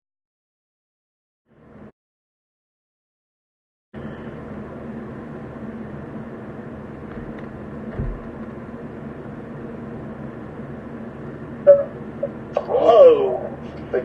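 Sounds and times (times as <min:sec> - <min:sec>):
low hum: 0:04.0 - 0:14.0
low thump: 0:07.1 - 0:08.4.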